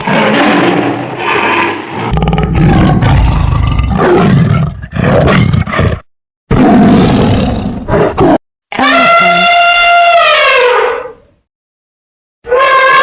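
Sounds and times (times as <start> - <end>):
large animal roaring: 0.0 - 8.4.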